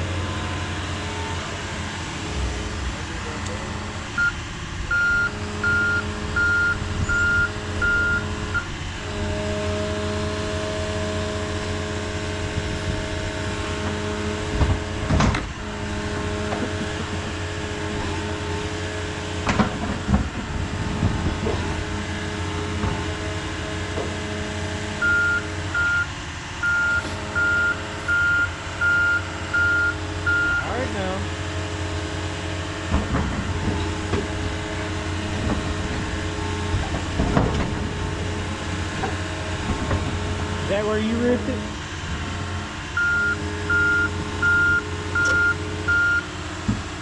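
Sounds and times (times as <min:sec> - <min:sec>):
diesel heavy equipment running: 0:00.0 - 0:47.0
back-up alarm beeping: 0:04.2 - 0:08.7, 0:25.0 - 0:30.8, 0:43.0 - 0:46.3.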